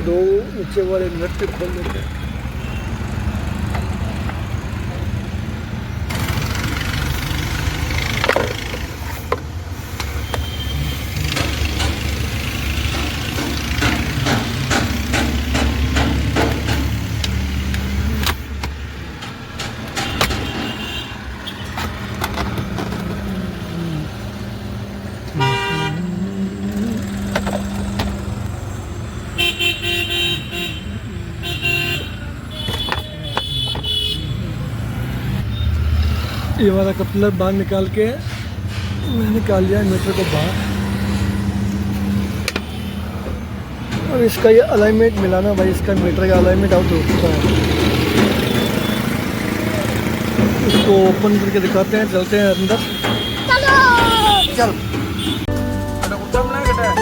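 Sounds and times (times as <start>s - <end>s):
road traffic: 0.0s - 57.0s
car horns honking: 1.5s - 3.8s, 7.8s - 28.4s, 29.0s - 35.9s, 38.7s - 57.0s
hand tools clicking and rattling: 11.2s - 20.8s.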